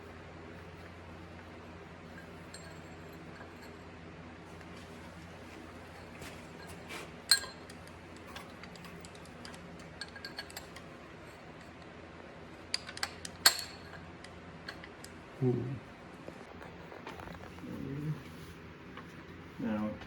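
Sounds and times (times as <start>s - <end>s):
low steady hum: 0.0s - 20.0s
metal tools clinking: 2.2s - 3.8s, 5.8s - 11.7s, 12.7s - 15.2s.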